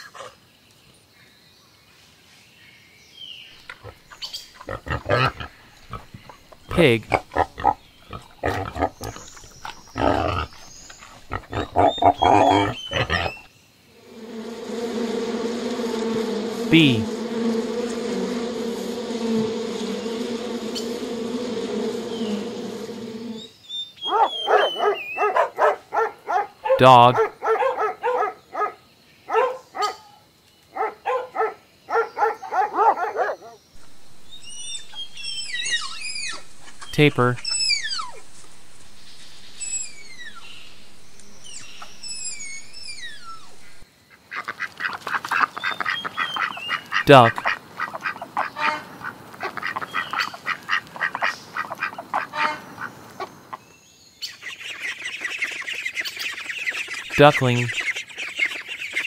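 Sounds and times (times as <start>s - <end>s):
pigs grunting and squeaking: 4.6s - 6.4s, 7.1s - 13.5s
honeybees buzzing: 14.0s - 23.5s, 33.8s - 43.9s
dog barking and yipping: 24.1s - 30.0s, 30.8s - 33.6s
squeaky falling whistles: 33.9s - 43.8s.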